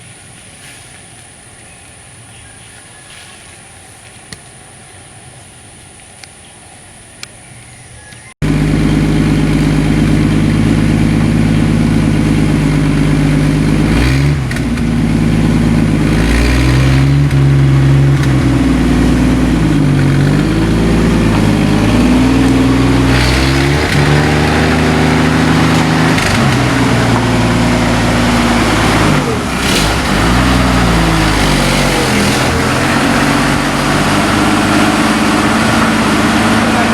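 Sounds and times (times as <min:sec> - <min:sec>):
truck engine revving: 0:08.4 - 0:36.9.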